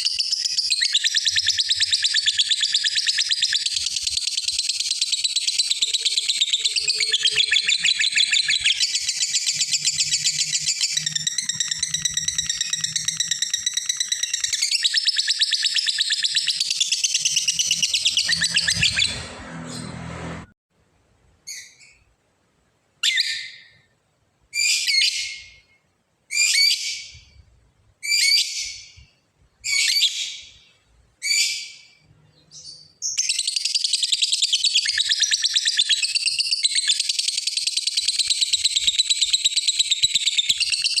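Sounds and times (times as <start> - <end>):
lovebird chattering trill: 0.0 - 19.2.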